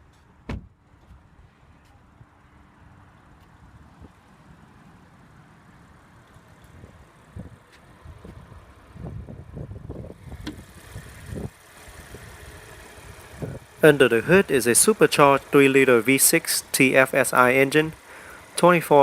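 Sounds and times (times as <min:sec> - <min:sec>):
car hood knocks and thumps: 0:00.4 - 0:00.7
low steady rumble: 0:06.9 - 0:18.7.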